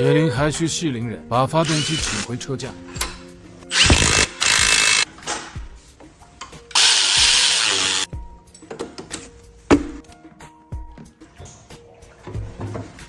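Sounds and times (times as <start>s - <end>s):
power tool driving bolts: 1.6s - 2.3s, 3.0s - 5.1s, 6.7s - 8.1s.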